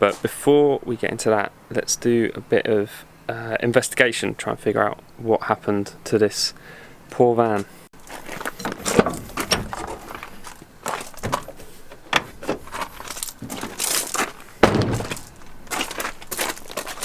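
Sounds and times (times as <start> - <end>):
heavy thud: 8.6 - 10.4, 14.6 - 15.8.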